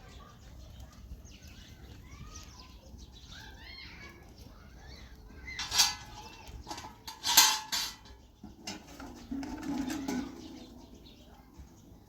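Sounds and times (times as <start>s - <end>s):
hard objects clinking: 5.5s - 10.5s.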